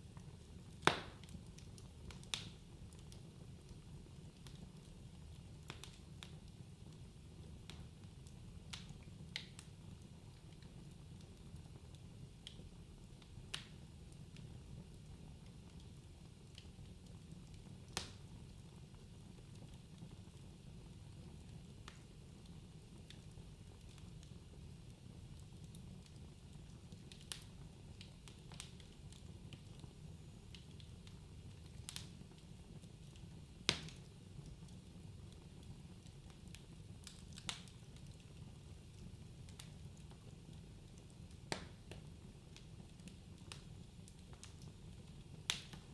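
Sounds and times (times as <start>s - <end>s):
wood fire crackling and popping: 0.0s - 45.9s
sharp pops of fire: 0.7s - 3.2s, 17.9s - 18.3s, 33.6s - 34.6s, 36.2s - 38.2s, 41.2s - 43.7s, 45.4s - 45.9s.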